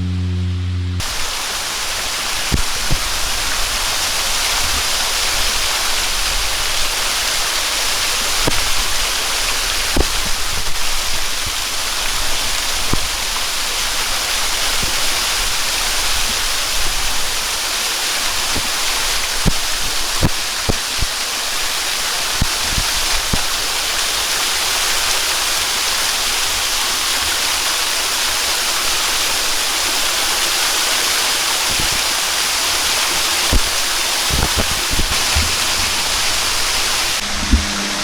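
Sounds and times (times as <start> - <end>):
water splashing ticks: 1.0 - 37.8
waterfall pouring: 1.0 - 38.0
held music tones: 34.4 - 38.0.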